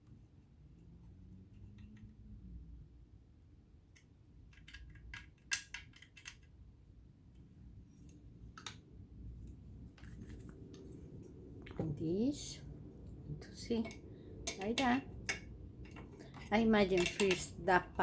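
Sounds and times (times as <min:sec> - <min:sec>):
metallic clicks of tools: 0:13.8 - 0:17.5.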